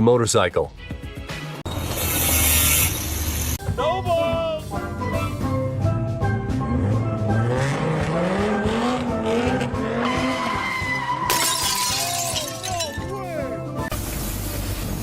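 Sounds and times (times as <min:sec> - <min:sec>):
background music: 0:00.0 - 0:01.8, 0:03.4 - 0:14.0
engine revving: 0:06.5 - 0:11.0
tyres skidding: 0:06.6 - 0:13.9.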